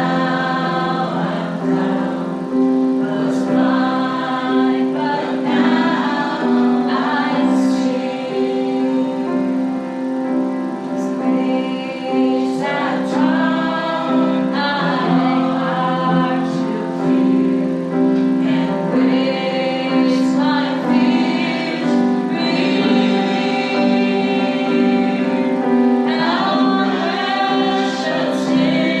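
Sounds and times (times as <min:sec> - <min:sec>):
woman singing: 0:00.0 - 0:09.6, 0:11.0 - 0:29.0
voices singing together: 0:00.0 - 0:29.0.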